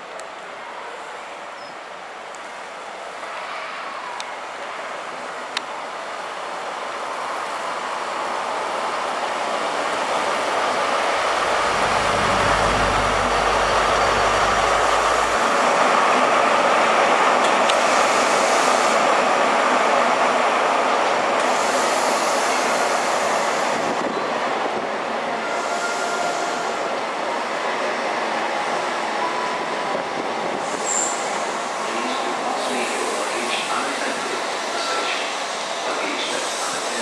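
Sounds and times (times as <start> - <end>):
train passing at speed: 0.0 - 37.0
wheels roaring on rail: 2.3 - 28.0
diesel engine droning: 11.2 - 15.7.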